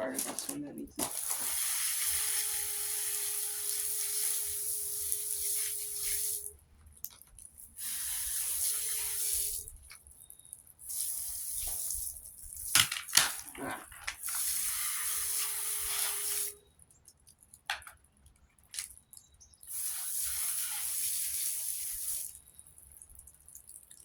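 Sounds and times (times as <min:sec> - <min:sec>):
hose spraying water on fan guard: 0:00.2 - 0:06.6, 0:07.6 - 0:09.9, 0:10.8 - 0:16.6, 0:19.6 - 0:22.5.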